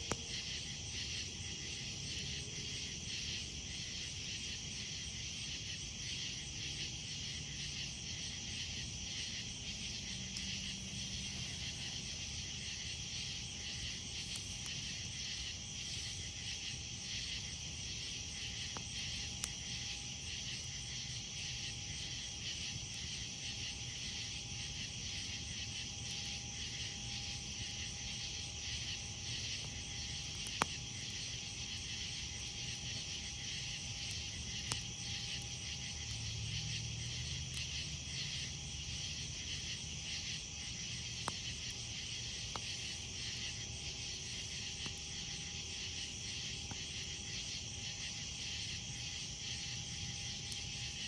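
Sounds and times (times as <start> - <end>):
campfire crackling: 0.0 - 51.0
night insects chirping: 0.0 - 51.0
burning wood popping: 27.7 - 36.0.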